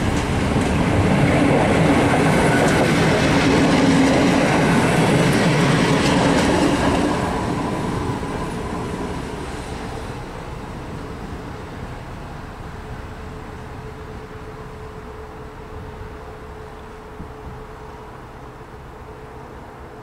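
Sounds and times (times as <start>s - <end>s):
wheels clacking over rail joints: 0.0s - 13.8s
train coaches rolling past: 0.0s - 20.0s.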